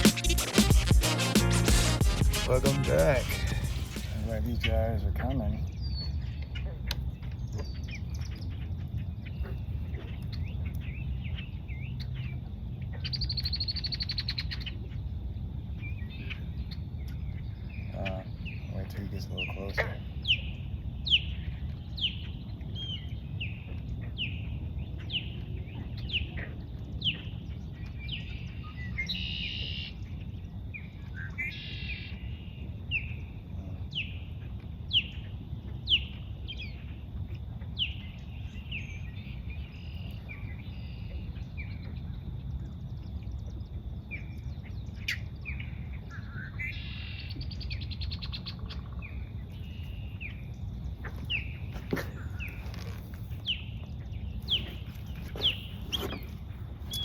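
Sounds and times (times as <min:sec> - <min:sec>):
steady low rumble: 0:00.7 - 0:05.2
bird chirping: 0:15.8 - 0:30.0, 0:37.8 - 0:57.0
buzzy bird calls: 0:54.3 - 0:57.0.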